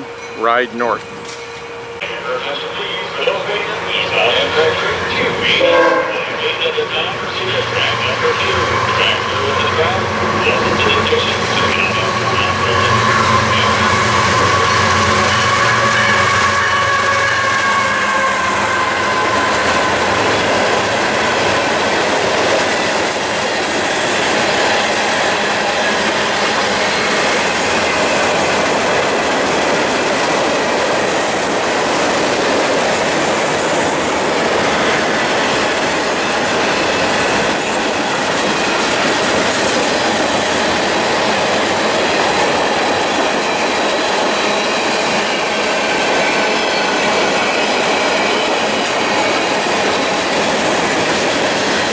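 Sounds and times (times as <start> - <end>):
high squeal: 0.0 - 21.8
train wheels clicking over rails: 1.0 - 16.5.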